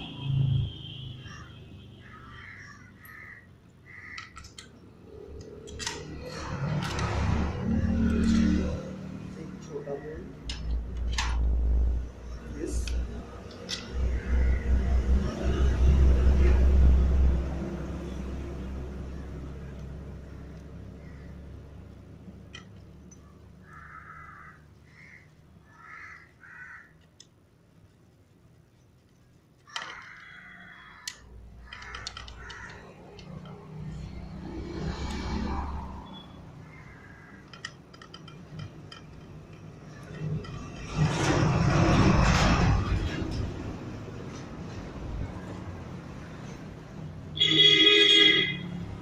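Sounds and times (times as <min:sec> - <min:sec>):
bird harsh calls: 0:01.2 - 0:04.5, 0:23.6 - 0:26.9
crows cawing: 0:01.2 - 0:04.7, 0:13.9 - 0:15.0, 0:20.3 - 0:21.5, 0:23.6 - 0:27.1, 0:29.6 - 0:34.0, 0:36.1 - 0:38.2
sharp clicks: 0:04.1 - 0:08.8, 0:28.7 - 0:35.7
rumbling noise: 0:39.9 - 0:45.8.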